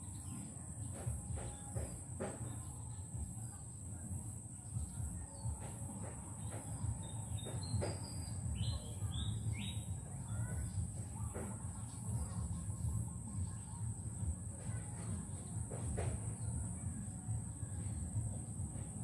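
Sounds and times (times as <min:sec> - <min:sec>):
bird chirping: 0:04.8 - 0:14.0.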